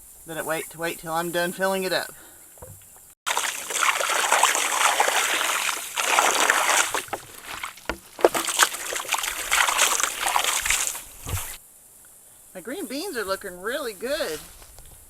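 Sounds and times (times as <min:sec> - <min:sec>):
water running from a hose: 0:03.3 - 0:11.6.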